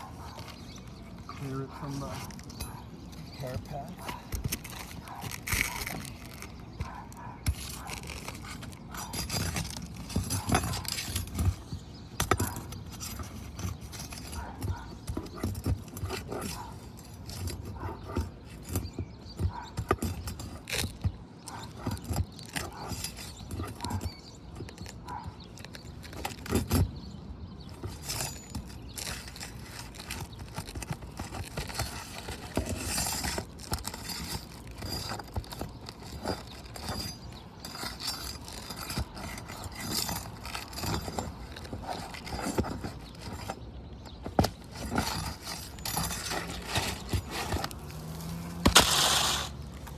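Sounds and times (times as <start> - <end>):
hand tools scraping shingles: 0.0 - 49.9.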